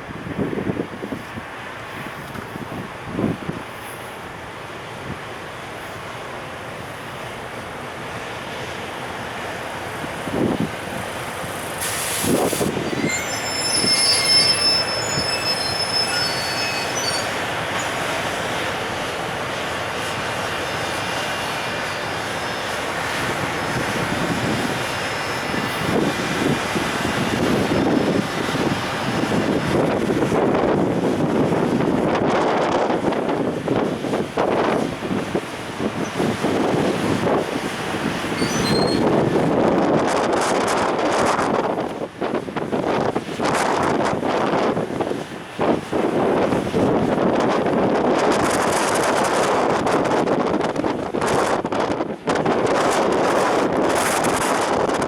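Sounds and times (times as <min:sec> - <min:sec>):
train wagons rumbling and clattering: 0:00.0 - 0:55.0
train wheels squealing: 0:11.8 - 0:18.7, 0:20.7 - 0:29.9, 0:38.2 - 0:39.2.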